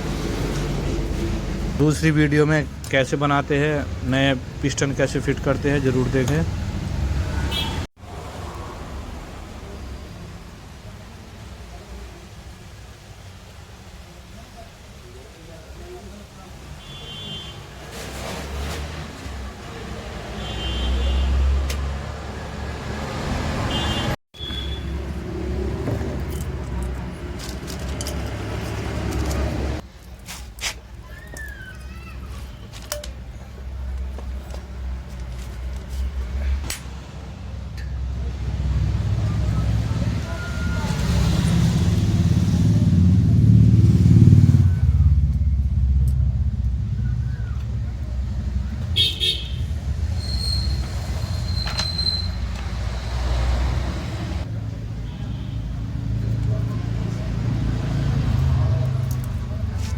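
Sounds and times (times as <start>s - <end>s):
motor vehicle rumble: 0.0s - 13.0s, 21.0s - 59.9s
motorcycle engine revving: 40.9s - 51.3s.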